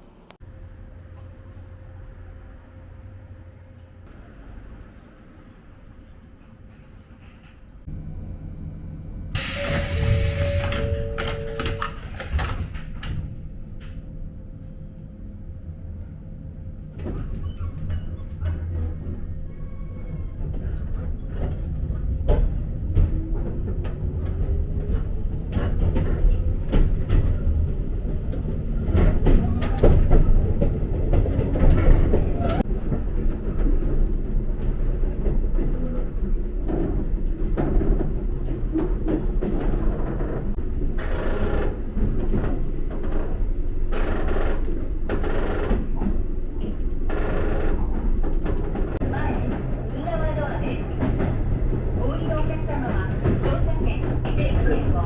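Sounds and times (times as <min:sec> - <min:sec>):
electric train motor whine: 0:08.0 - 0:12.6, 0:36.1 - 0:45.0
train wheels clicking over rail joints: 0:28.4 - 0:49.8.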